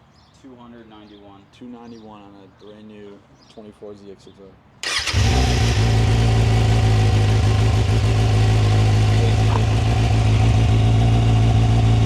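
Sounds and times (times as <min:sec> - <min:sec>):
motorcycle engine idling: 0:04.8 - 0:12.0.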